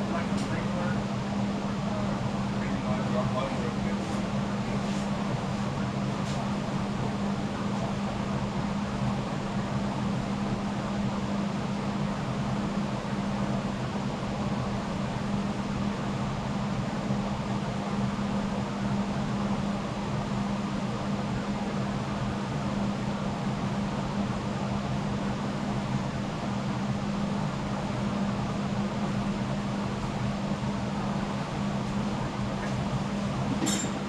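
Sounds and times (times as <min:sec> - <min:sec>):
low mechanical hum: 0:00.0 - 0:34.0.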